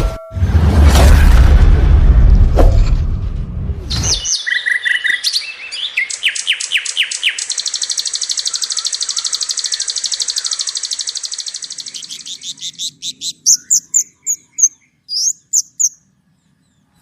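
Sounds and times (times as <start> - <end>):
bird singing whistles: 3.9 - 16.0.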